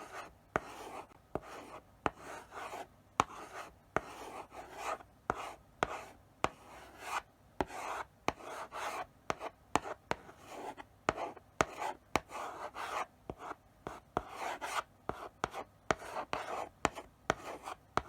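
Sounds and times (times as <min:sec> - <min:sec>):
chalk scratching on blackboard: 0:00.0 - 0:13.1, 0:13.9 - 0:18.0
chalk tapping on board: 0:03.2 - 0:04.2, 0:11.1 - 0:18.0.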